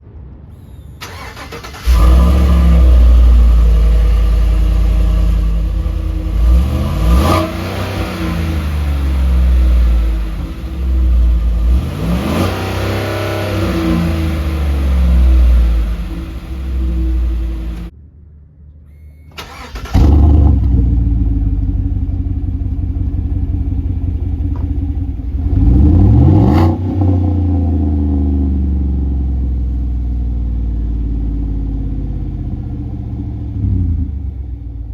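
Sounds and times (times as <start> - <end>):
truck engine revving: 1.0 - 17.9, 19.4 - 24.4, 25.2 - 29.3.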